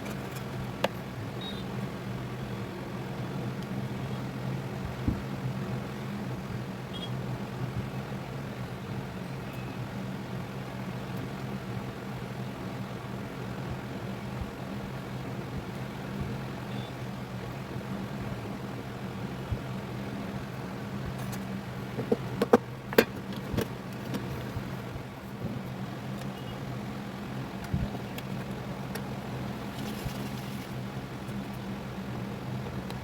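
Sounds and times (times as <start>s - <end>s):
low electrical hum: 0.0s - 33.0s
sharp clicks and knocks: 21.1s - 24.3s.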